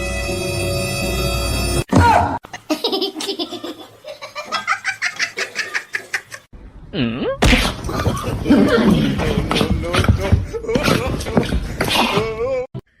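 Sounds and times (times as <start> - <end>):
background music: 0.0 - 1.9.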